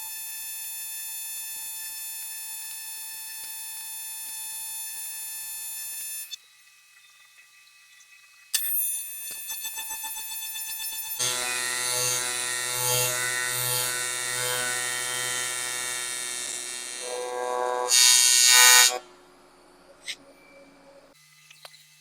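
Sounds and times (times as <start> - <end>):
welding arc buzzing: 8.6 - 20.2.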